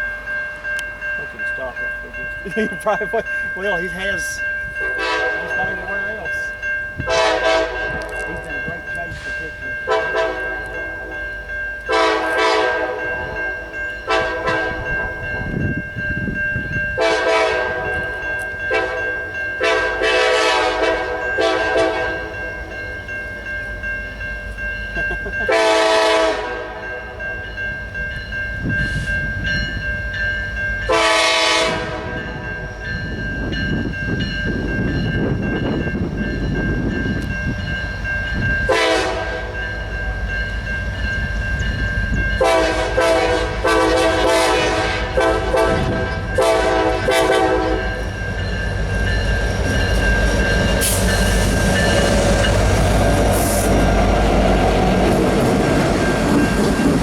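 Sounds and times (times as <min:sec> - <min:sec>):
moving train rumble: 0:00.0 - 0:57.0
locomotive horn blasts: 0:04.8 - 0:05.9, 0:07.0 - 0:08.5, 0:09.9 - 0:10.9, 0:11.9 - 0:13.4, 0:14.0 - 0:15.2, 0:16.9 - 0:22.4, 0:25.5 - 0:27.2, 0:30.9 - 0:32.4, 0:38.7 - 0:39.6, 0:42.4 - 0:48.1.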